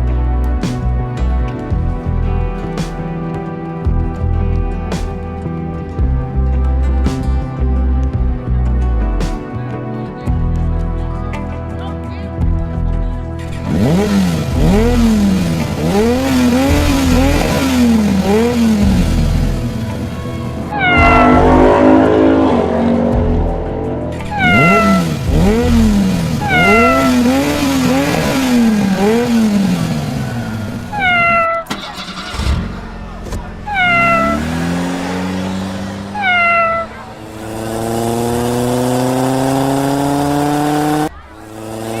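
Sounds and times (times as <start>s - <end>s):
rising drone: 13.8s - 31.6s
wavering tone: 20.2s - 28.6s, 30.9s - 31.8s, 33.7s - 34.8s, 36.2s - 37.0s
cat meowing: 20.7s - 22.8s, 24.2s - 28.0s, 30.9s - 32.3s, 33.7s - 34.8s, 36.1s - 37.1s.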